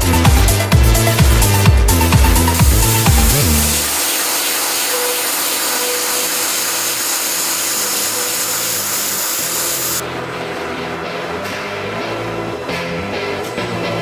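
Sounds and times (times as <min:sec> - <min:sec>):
cnc router hissing: 0:02.4 - 0:10.0.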